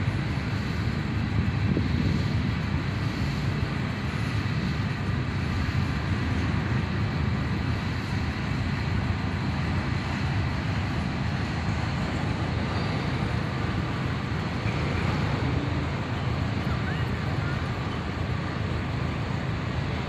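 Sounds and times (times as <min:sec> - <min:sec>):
freight train rolling past: 0:00.0 - 0:20.0.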